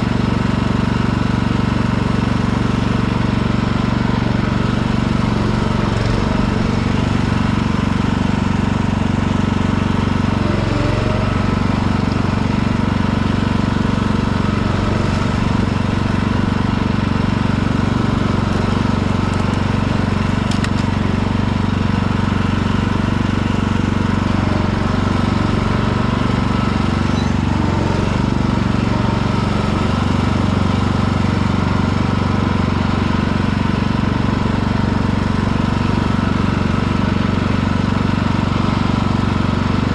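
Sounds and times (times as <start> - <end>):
riding mower engine running: 0.0 - 39.9.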